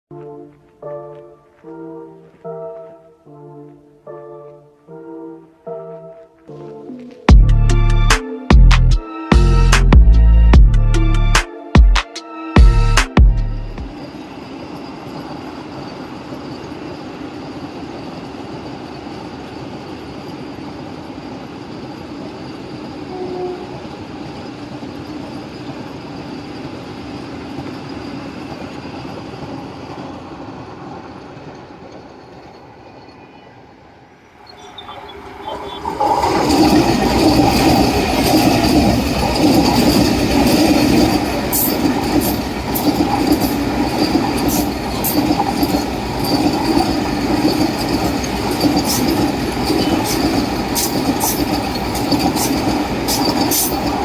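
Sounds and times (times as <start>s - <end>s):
train rumbling on rails: 12.6s - 54.0s
wheels clattering over track: 34.6s - 54.0s.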